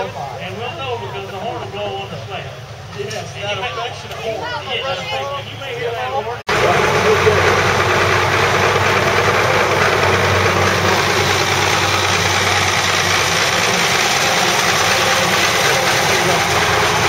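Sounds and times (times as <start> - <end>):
tractor engine running: 6.5 - 17.0.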